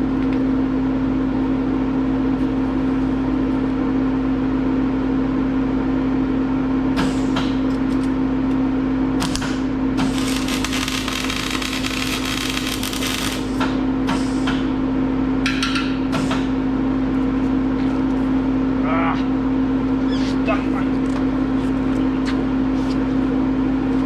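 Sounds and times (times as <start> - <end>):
steady electrical hum: 0.0 - 24.0
welder arc crackling: 10.0 - 13.6.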